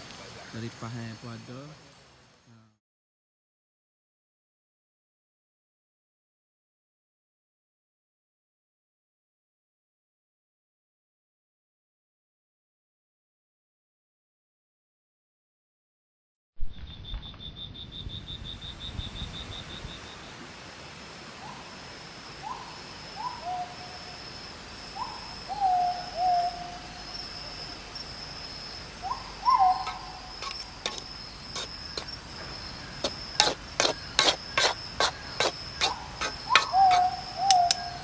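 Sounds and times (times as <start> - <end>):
insects buzzing and trilling: 17.8 - 38.0
animal hooting call: 29.0 - 38.0
sharp clicks: 36.6 - 37.9.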